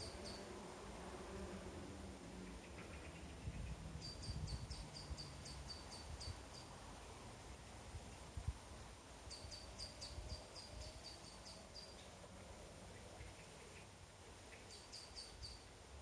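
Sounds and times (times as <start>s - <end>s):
small bird singing: 0.0s - 0.5s, 2.4s - 6.7s, 9.3s - 12.2s, 12.9s - 15.7s.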